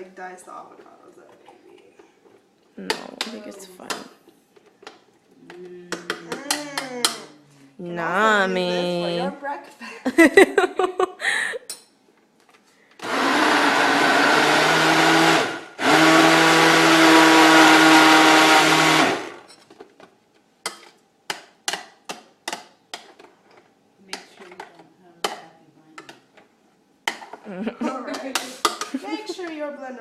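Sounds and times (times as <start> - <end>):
countertop blender running: 13.0 - 19.5.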